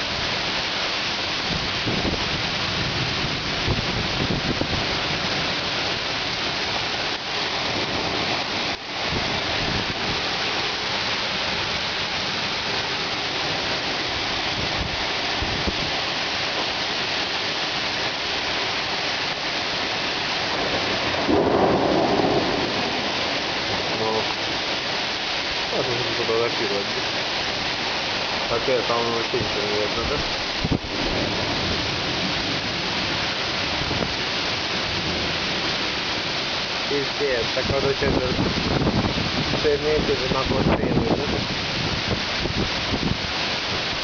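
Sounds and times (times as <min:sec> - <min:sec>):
heavy rain pouring: 0:00.0 - 0:44.0
thunder rumbling: 0:01.4 - 0:16.0, 0:20.4 - 0:28.5, 0:29.3 - 0:36.3.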